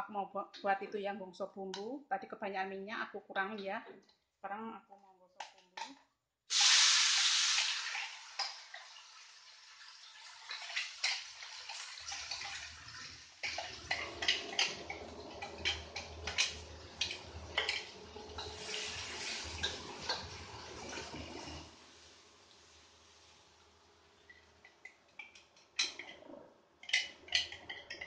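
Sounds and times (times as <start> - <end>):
frying with pops and crackles: 5.4 - 28.0
paste sizzling in hot oil: 6.5 - 24.6.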